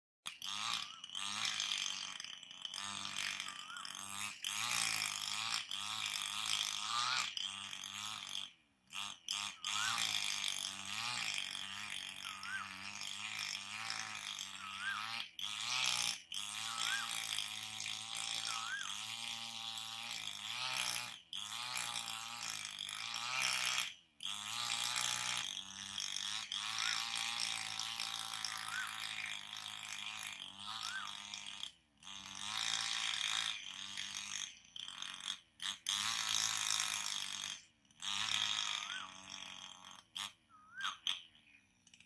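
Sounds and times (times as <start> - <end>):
bird chatter: 3.4 - 4.0
bird whistled call: 18.5 - 18.9, 30.8 - 31.2, 40.5 - 41.0.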